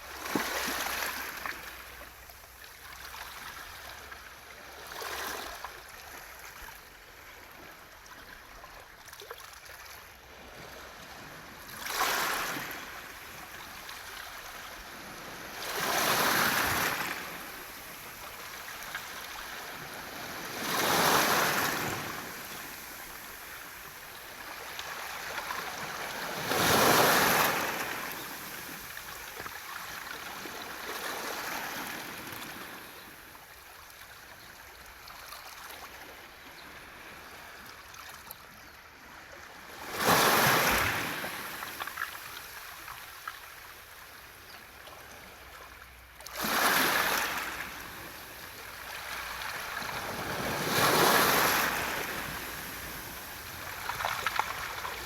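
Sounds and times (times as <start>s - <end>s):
waves washing up pebble beach: 25.6s - 28.6s.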